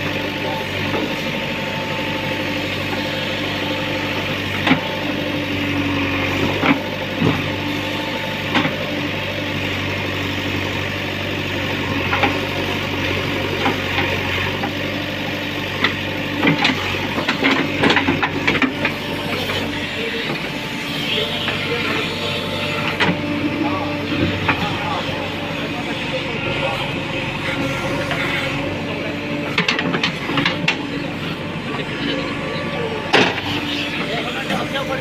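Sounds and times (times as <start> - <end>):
diesel engine running: 0.0 - 35.0
sharp knocks and clanks: 15.8 - 19.5, 29.5 - 30.9, 33.1 - 33.5.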